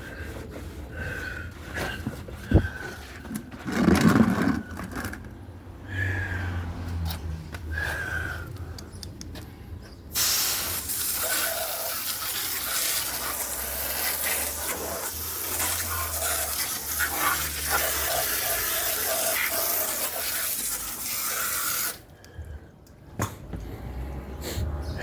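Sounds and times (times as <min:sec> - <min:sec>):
water spray hissing and splattering: 0:10.1 - 0:22.1.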